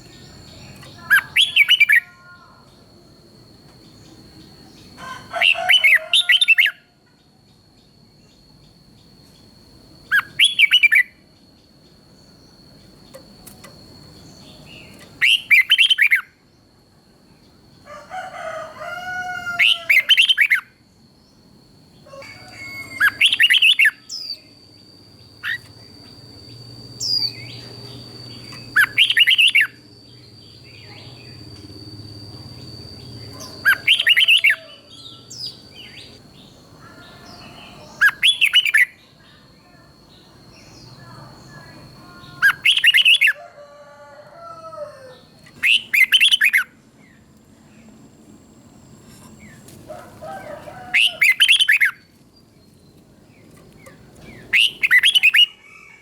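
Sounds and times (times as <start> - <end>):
bird singing warbled phrases: 0.0 - 2.8, 10.1 - 11.2, 14.2 - 16.4, 19.6 - 20.7, 22.8 - 24.6, 25.2 - 31.6, 32.4 - 43.4, 45.1 - 47.3, 50.9 - 52.0, 52.6 - 55.6
thin steady high tone: 19.6 - 49.7.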